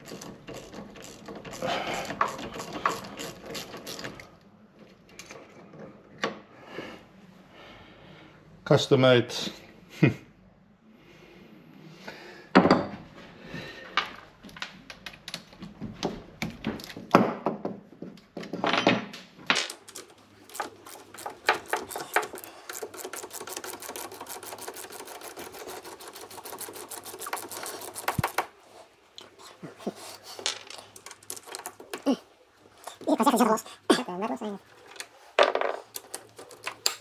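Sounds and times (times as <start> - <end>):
hand tools clicking on engine parts: 19.6 - 37.0.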